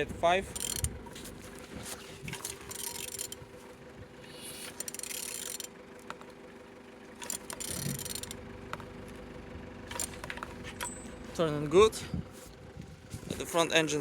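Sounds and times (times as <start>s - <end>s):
scraping mechanical noise: 0.0s - 14.0s
wrench ratcheting clicks: 0.5s - 0.9s, 2.4s - 3.4s, 4.7s - 6.2s, 7.2s - 8.4s.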